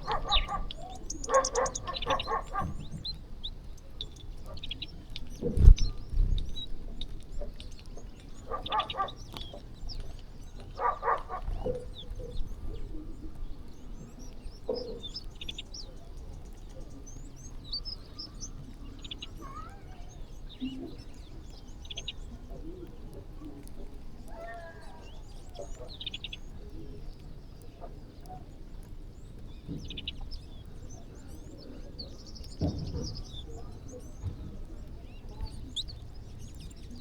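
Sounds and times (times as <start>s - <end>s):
animal calls: 0.0s - 3.2s, 8.3s - 9.8s, 10.6s - 12.4s
small birds chirping: 0.0s - 37.0s.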